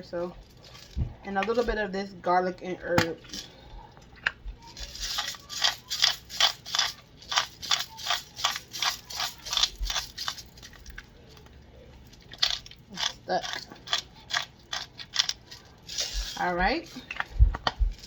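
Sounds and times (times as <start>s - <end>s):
spice shaker rattling: 4.6s - 11.5s, 12.1s - 17.3s.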